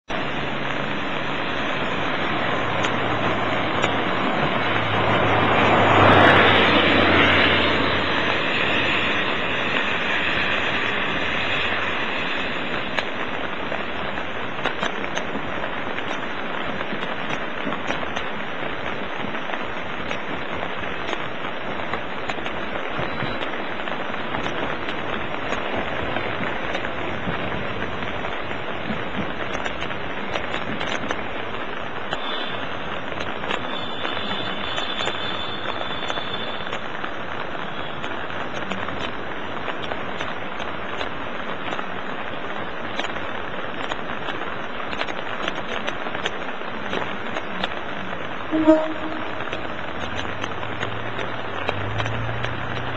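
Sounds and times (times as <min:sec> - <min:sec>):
rain hissing: 0:00.1 - 0:52.9
raindrop ticks: 0:00.1 - 0:52.9
vehicle passing: 0:02.3 - 0:09.2.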